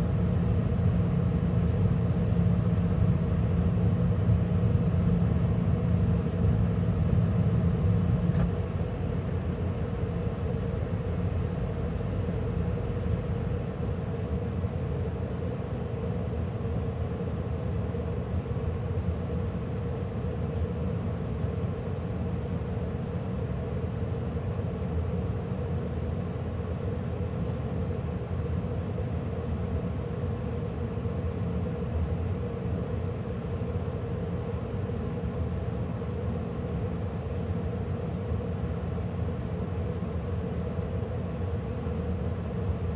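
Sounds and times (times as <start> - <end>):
burner shutoff click: 0.0 - 13.6
draft inducer motor: 0.0 - 14.1
gas burners running: 0.0 - 14.5
blower running steadily: 0.0 - 14.7.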